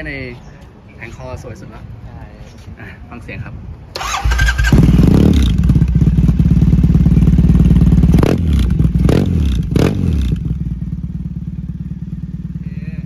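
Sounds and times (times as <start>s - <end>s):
motorcycle engine idling and revving: 4.0s - 13.0s.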